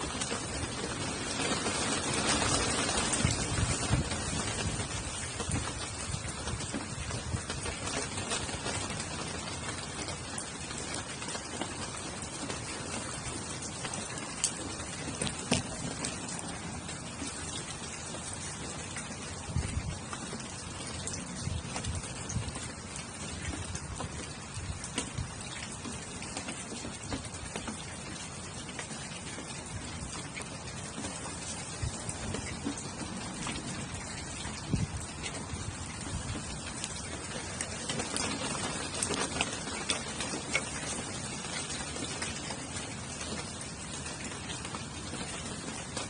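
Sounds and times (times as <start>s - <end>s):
rain falling: 0.0s - 46.0s.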